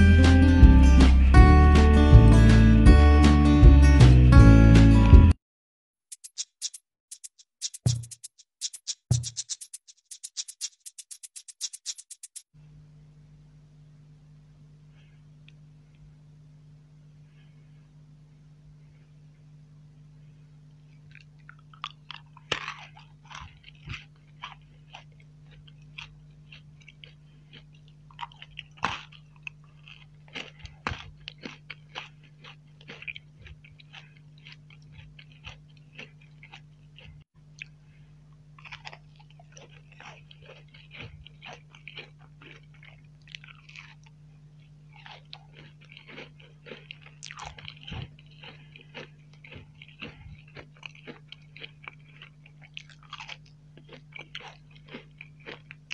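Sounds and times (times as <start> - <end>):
steady low hum: 12.6 - 55.9
crunching and chewing sweets: 14.6 - 55.9.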